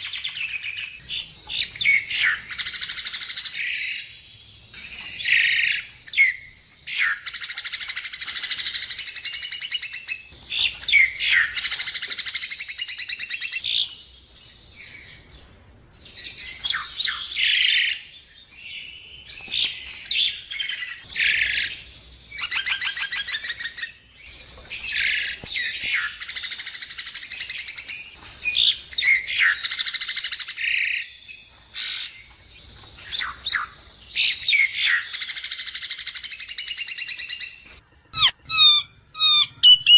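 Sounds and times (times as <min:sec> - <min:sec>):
bird chattering and trilling: 0:33.0 - 0:39.9.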